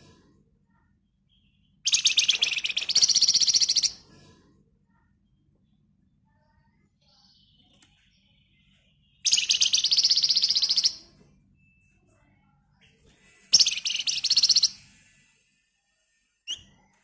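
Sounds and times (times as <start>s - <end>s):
songbird rattling trill: 9.2s - 11.0s, 13.6s - 14.8s.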